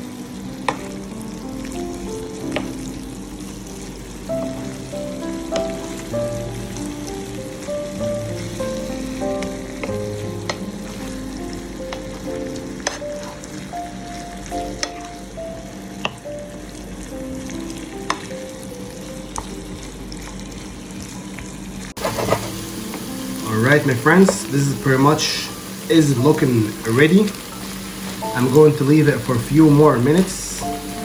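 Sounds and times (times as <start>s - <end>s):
background music: 0.0s - 19.8s, 22.0s - 31.0s
chicken sizzling in frying pan: 0.0s - 31.0s.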